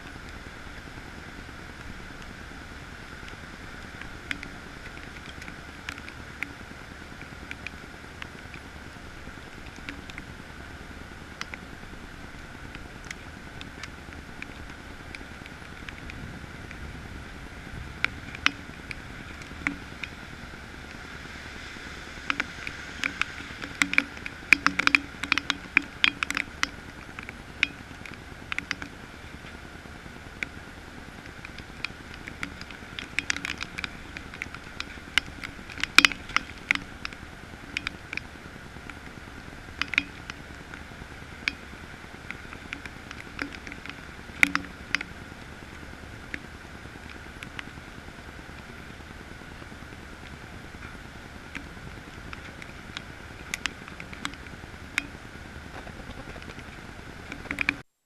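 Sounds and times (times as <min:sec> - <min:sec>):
heavy rain: 0:00.0 - 0:57.8
drops tapping close by: 0:39.8 - 0:40.4.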